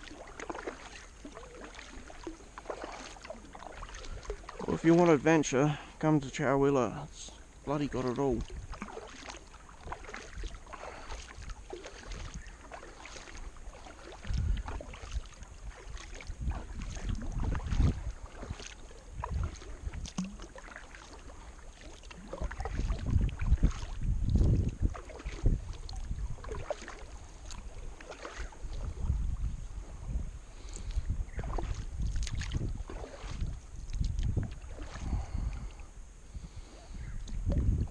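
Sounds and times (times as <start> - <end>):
paddle splashing in water: 0.0 - 6.0, 7.2 - 37.9
wind buffeting microphone: 7.8 - 20.5, 22.2 - 37.9.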